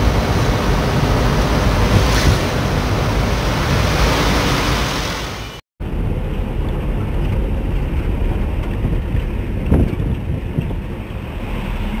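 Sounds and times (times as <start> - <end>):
road traffic rumble: 0.0 - 12.0
wind buffeting microphone: 5.9 - 12.0.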